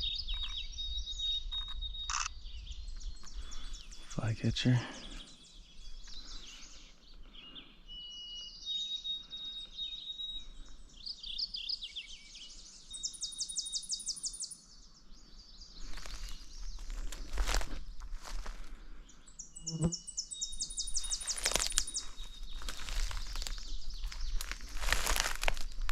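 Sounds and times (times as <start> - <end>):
songbirds singing: 0.0 - 25.9
bird trill: 11.1 - 14.6, 19.3 - 25.9
rustling: 21.0 - 25.9.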